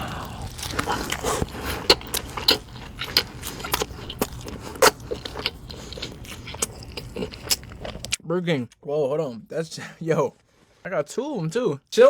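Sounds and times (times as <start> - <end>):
crunching and chewing food: 0.0 - 8.2.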